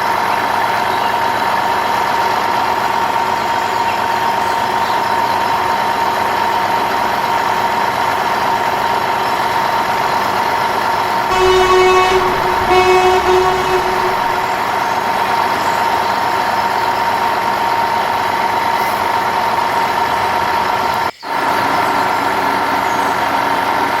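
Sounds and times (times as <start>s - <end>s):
truck engine running: 11.3s - 14.5s
truck horn honking: 11.3s - 14.8s.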